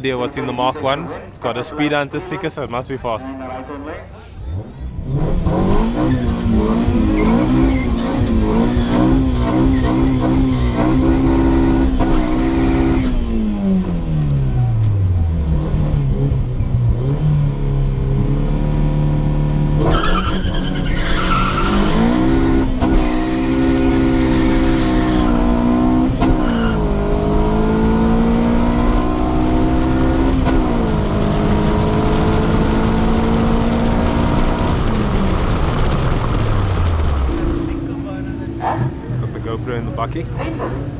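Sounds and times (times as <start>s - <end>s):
car engine revving: 4.4s - 40.9s
tyre squeal: 7.1s - 8.2s, 19.8s - 22.2s, 26.2s - 26.8s.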